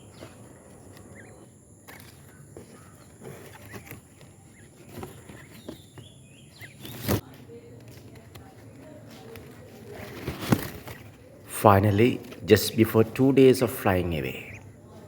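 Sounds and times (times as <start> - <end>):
bird chirps: 0.0 - 7.2, 12.5 - 14.9.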